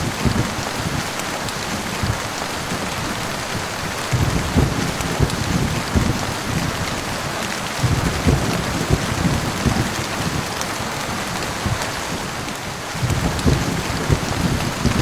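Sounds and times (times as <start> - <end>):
heavy rain: 0.0 - 15.0
low thunder rumble: 0.0 - 15.0.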